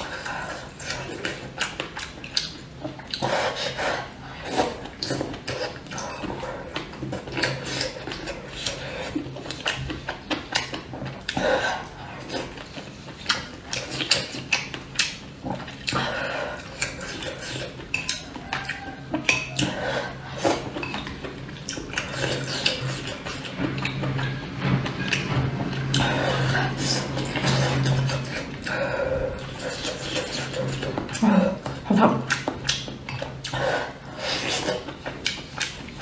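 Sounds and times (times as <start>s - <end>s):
mouth sounds of eating: 0.0s - 36.0s
utensils clinking against dishes: 15.8s - 36.0s.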